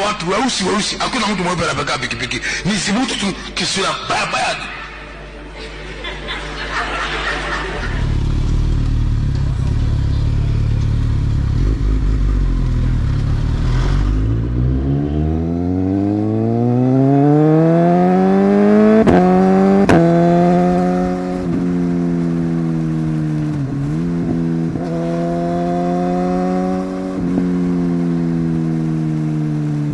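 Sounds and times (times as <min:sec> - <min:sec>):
motorcycle engine revving: 0:07.8 - 0:29.9.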